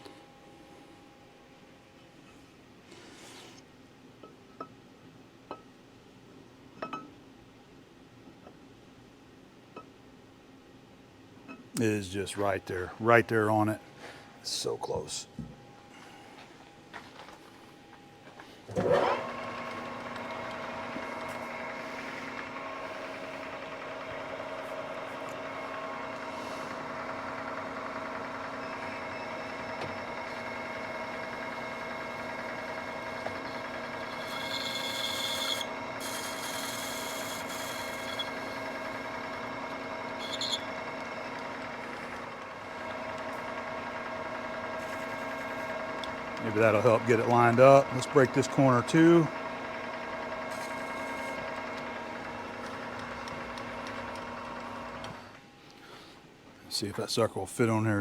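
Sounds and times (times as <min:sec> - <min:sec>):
lathe running: 0:18.7 - 0:55.4
tool cutting steel hissing: 0:33.4 - 0:39.0.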